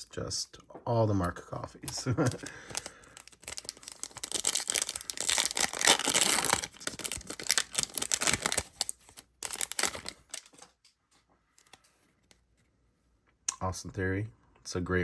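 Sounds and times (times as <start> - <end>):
wrapper torn and crinkled: 2.3 - 10.7.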